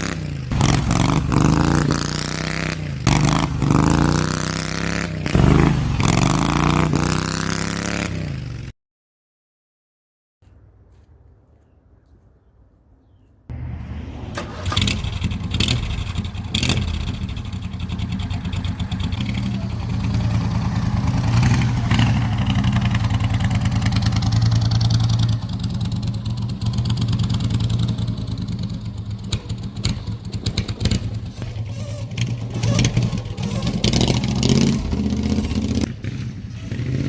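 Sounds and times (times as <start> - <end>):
riding mower engine revving: 0.0 - 8.7, 13.5 - 37.0
exhaust cracks: 13.5 - 37.0.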